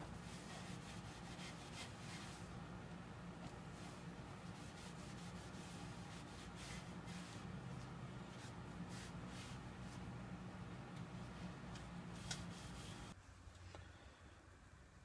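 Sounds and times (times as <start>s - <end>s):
rubbing and handling noises: 0.0s - 2.6s, 3.4s - 10.1s, 11.1s - 13.2s
low steady hum: 0.0s - 15.0s.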